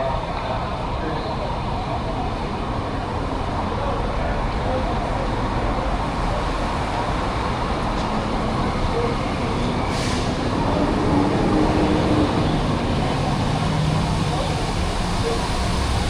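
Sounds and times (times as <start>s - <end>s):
street traffic: 0.0s - 16.0s
wind: 0.0s - 16.0s.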